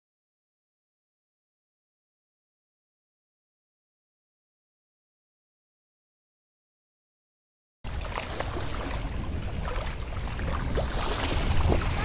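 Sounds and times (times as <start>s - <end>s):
boat rumble: 7.9s - 12.0s
faint small splashes: 7.9s - 12.0s
wind and water rushing: 7.9s - 12.0s.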